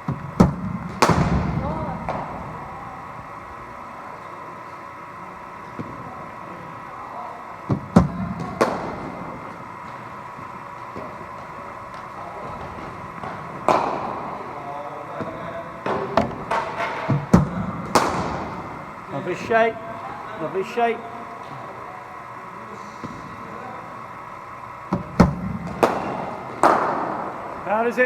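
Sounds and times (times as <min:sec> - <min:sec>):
bat knocking cricket ball: 0:00.0 - 0:03.4, 0:07.7 - 0:14.6, 0:15.2 - 0:19.1, 0:24.9 - 0:27.6
bowling machine firing: 0:00.0 - 0:21.3, 0:23.2 - 0:28.0
steady hum: 0:00.0 - 0:28.0.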